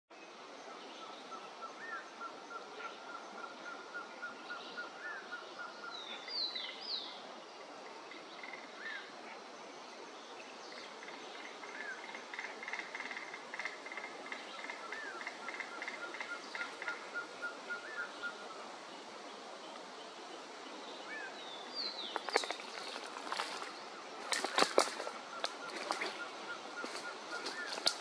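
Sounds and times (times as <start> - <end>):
birds calling: 21.0 - 28.0.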